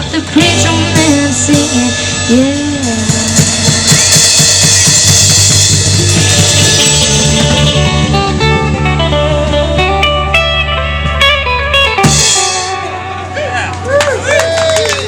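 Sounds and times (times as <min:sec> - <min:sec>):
bass: 0:00.0 - 0:15.0
drum kit: 0:00.0 - 0:15.0
guitar: 0:00.0 - 0:15.0.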